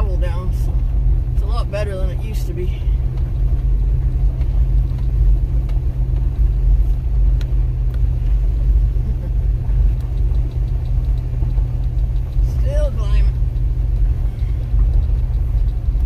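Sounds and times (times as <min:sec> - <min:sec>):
truck engine and tyres rumbling: 0:00.0 - 0:16.0
small clicks and knocks: 0:09.9 - 0:12.7, 0:13.3 - 0:16.0.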